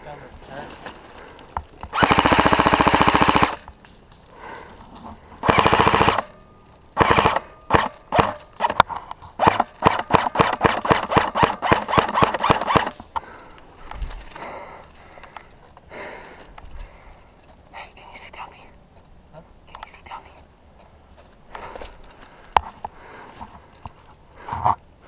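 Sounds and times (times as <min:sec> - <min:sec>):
airsoft gun firing: 0:01.9 - 0:03.7, 0:05.4 - 0:06.4, 0:07.0 - 0:08.8, 0:09.4 - 0:13.0.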